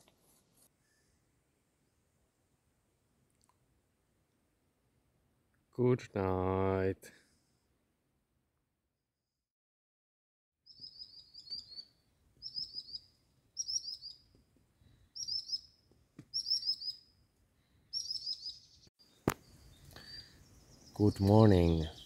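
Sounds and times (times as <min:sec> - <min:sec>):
songbird singing: 0:10.7 - 0:22.0.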